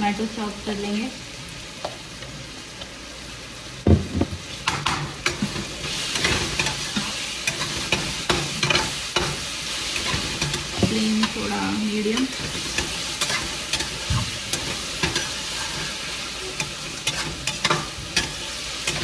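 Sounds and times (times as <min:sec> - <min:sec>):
food sizzling in a pan: 0:00.0 - 0:19.0
loud knock: 0:03.9 - 0:04.4
spoon clacking against pan: 0:04.6 - 0:09.4, 0:12.2 - 0:15.9, 0:16.6 - 0:19.0.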